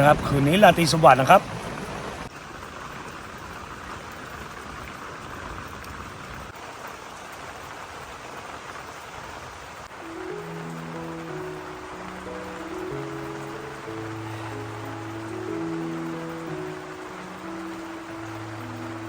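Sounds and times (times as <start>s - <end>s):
steady rain falling: 0.0s - 19.0s
soft music: 10.0s - 19.0s.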